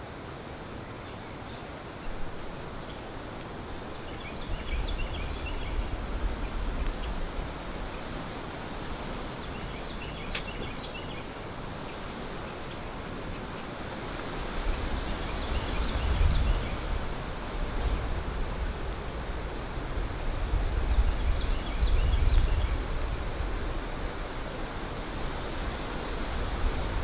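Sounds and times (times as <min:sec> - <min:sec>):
steady outdoor hiss: 0:00.0 - 0:27.0
songbird chirping: 0:00.4 - 0:19.2, 0:20.5 - 0:24.0
faint ticks: 0:03.3 - 0:03.6, 0:06.8 - 0:07.8.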